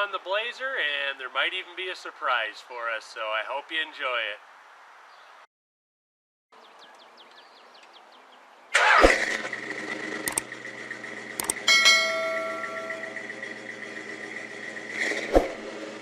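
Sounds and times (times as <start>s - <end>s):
vehicle engine starting and running: 8.7s - 16.0s.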